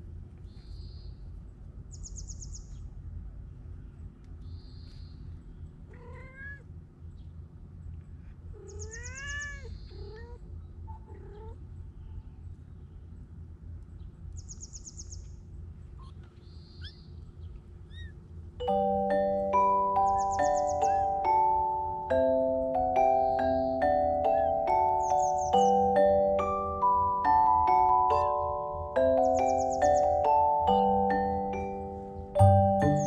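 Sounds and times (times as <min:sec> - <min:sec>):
low steady rumble: 0:00.0 - 0:33.0
birdsong chirping: 0:00.3 - 0:03.0, 0:03.6 - 0:33.0
cats meowing: 0:05.8 - 0:06.7, 0:08.5 - 0:11.7, 0:17.9 - 0:18.2, 0:20.1 - 0:21.6, 0:24.1 - 0:24.9
marimba-like music: 0:18.6 - 0:33.0.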